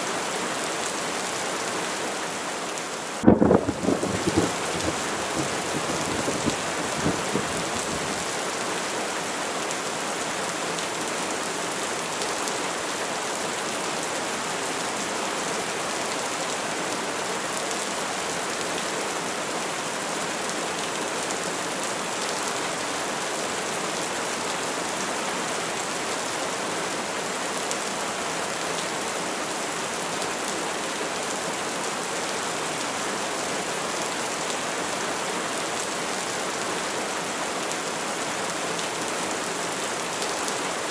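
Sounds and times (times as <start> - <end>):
steady rain falling: 0.0 - 40.9
thunder rumble: 3.2 - 8.4.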